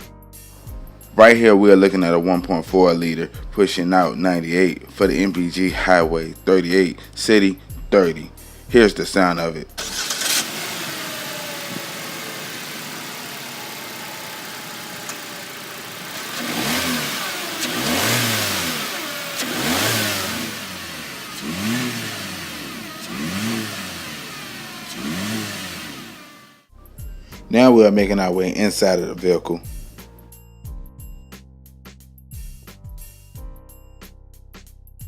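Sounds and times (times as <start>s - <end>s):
car engine idling and revving: 9.8s - 27.2s.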